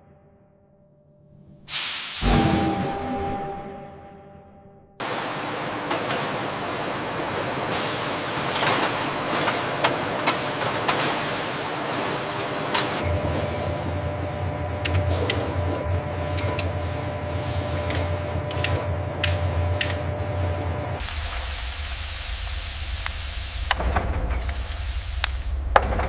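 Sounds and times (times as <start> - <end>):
machinery hiss: 1.7 - 2.4, 21.0 - 25.8
low hum: 2.2 - 5.0.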